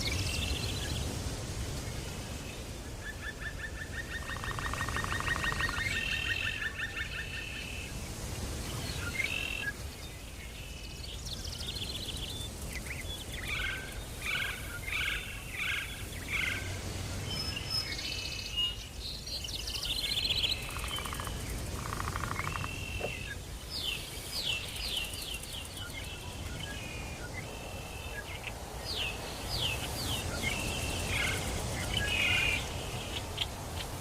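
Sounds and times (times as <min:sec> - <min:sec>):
wild birds calling: 0:02.9 - 0:08.0, 0:12.0 - 0:34.0.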